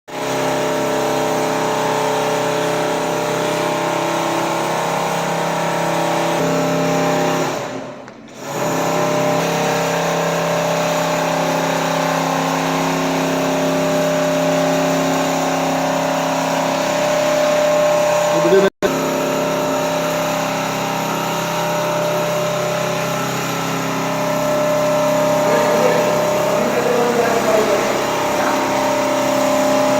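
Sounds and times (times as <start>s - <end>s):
quilting machine humming: 0.2s - 29.9s.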